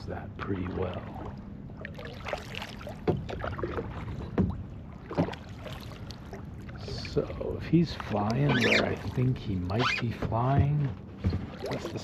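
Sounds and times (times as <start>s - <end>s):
paddle splashes: 0.4s - 12.0s.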